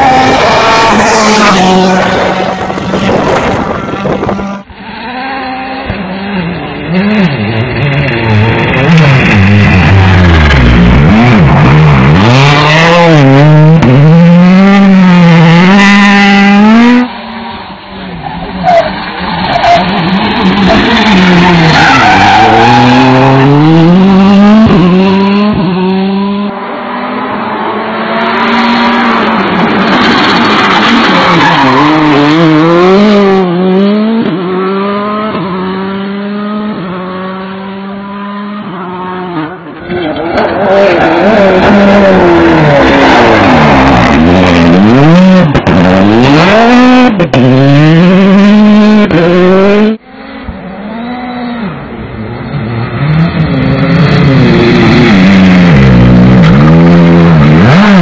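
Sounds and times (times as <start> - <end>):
tyres skidding: 0.0 - 25.9, 26.7 - 36.3
rally car engine revving: 0.0 - 58.0.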